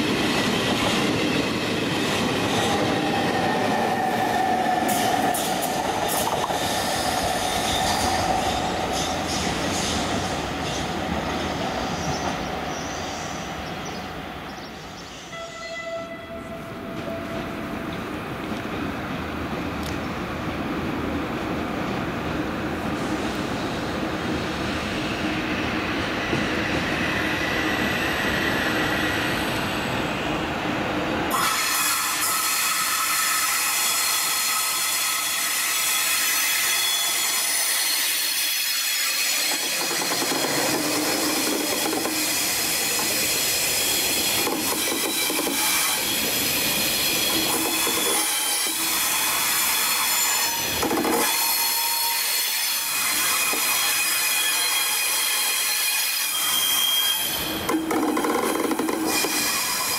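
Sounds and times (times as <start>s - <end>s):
train rumbling: 0.0s - 55.7s, 56.6s - 59.9s
high-pitched train wheel squeal: 0.1s - 14.0s, 24.8s - 30.2s, 31.3s - 59.9s.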